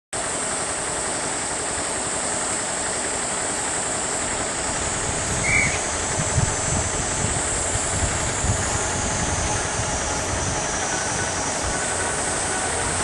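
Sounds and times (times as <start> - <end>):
freight train rumbling: 0.2 - 13.0
brief high chirp: 5.4 - 5.9.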